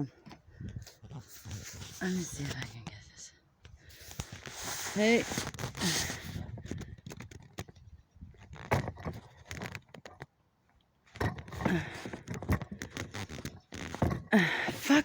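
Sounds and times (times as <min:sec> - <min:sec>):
stick knocking and scraping: 0:04.0 - 0:07.8, 0:08.4 - 0:10.4, 0:11.1 - 0:15.0.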